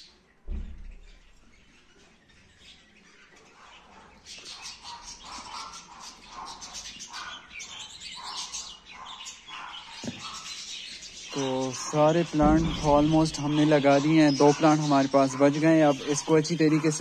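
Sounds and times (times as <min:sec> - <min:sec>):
small birds chirping: 0:00.0 - 0:17.0
sharp knock: 0:12.4 - 0:13.6.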